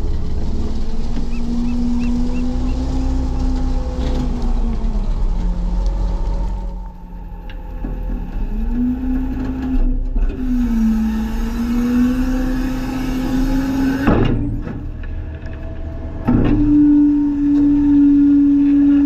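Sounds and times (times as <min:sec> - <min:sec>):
garbage truck engine and hydraulics: 0:00.0 - 0:19.0.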